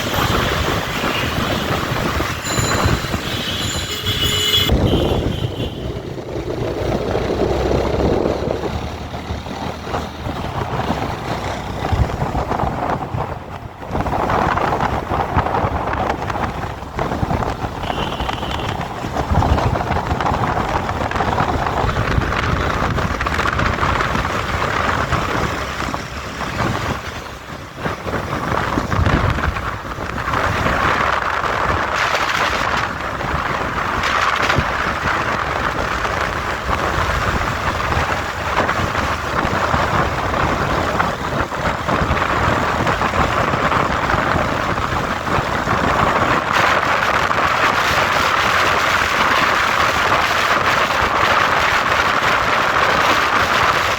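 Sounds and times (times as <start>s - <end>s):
motorcycle engine: 0.0s - 12.6s
road noise: 0.0s - 53.9s
wind rushing over microphone: 0.0s - 53.9s.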